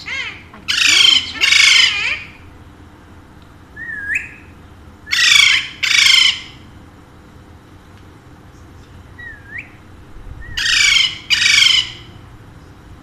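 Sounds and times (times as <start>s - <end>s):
parakeet squawks: 0.0s - 2.5s, 5.1s - 6.6s, 10.5s - 12.2s
parakeet whistle: 3.8s - 4.5s, 9.2s - 9.8s.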